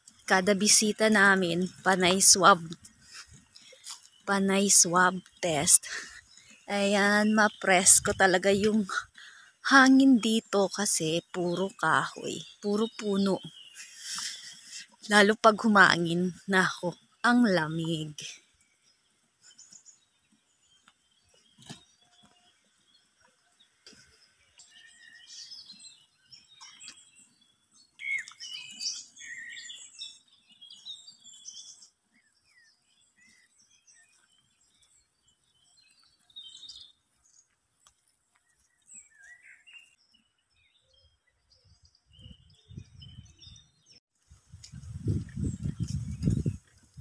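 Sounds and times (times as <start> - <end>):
songbirds chirping and twittering: 0.0 - 47.0.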